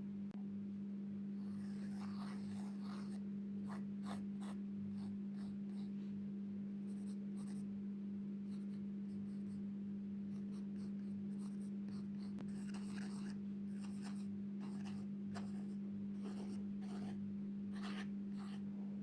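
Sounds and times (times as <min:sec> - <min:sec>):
pencil strokes scratching paper: 0:01.4 - 0:06.1, 0:06.9 - 0:07.6, 0:08.5 - 0:09.6, 0:10.3 - 0:18.6.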